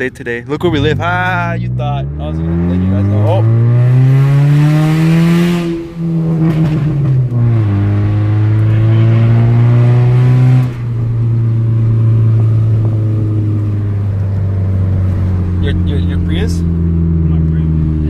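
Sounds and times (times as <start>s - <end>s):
car engine driving: 0.0s - 18.0s.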